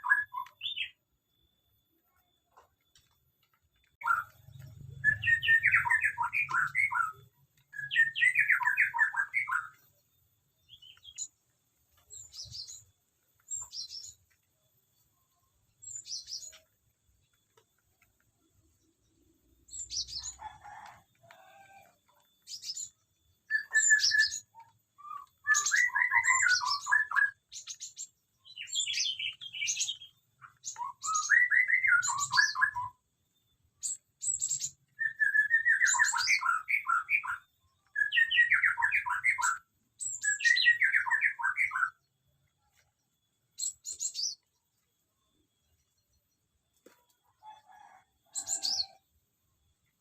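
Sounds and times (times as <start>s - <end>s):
birds warbling song: 0.0s - 1.4s, 2.1s - 49.1s
sharp high bird chirps: 0.0s - 2.6s, 3.7s - 10.0s, 22.4s - 33.0s, 33.8s - 42.1s.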